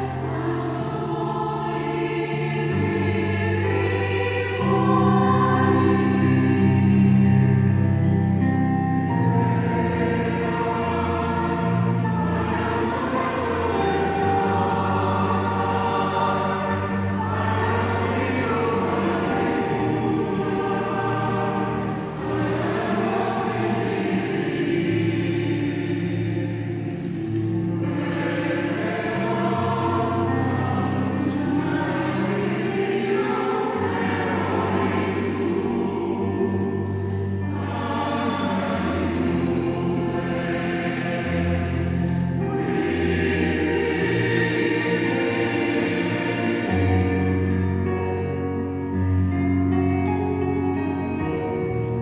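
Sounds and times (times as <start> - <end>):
choir singing: 0.0 - 52.0.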